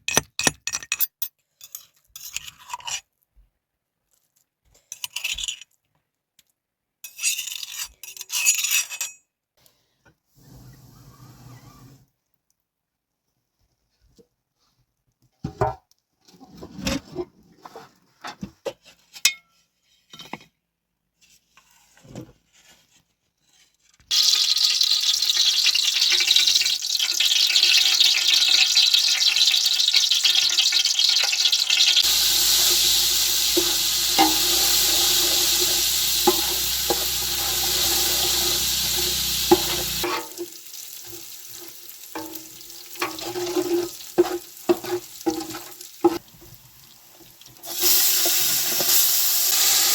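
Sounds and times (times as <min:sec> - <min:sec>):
food sizzling in hot oil: 0:24.1 - 0:49.9
stirring clinks: 0:32.0 - 0:46.2.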